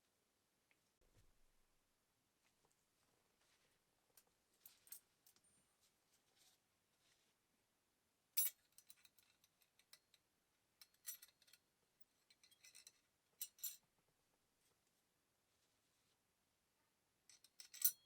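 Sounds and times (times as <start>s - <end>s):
small metal parts clinking: 10.8s - 13.8s, 17.3s - 18.0s.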